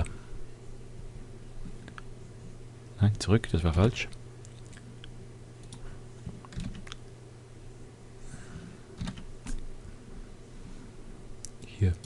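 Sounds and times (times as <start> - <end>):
steady low hum: 0.0 - 12.0
keyboard keystrokes: 6.5 - 7.0, 9.0 - 9.6.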